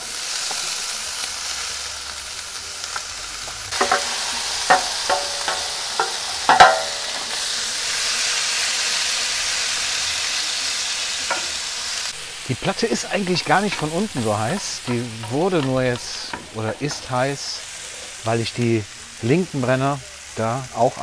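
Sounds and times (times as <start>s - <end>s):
vegetables sizzling on grill: 0.0s - 21.0s
utensil clinking on metal plate: 3.8s - 7.4s.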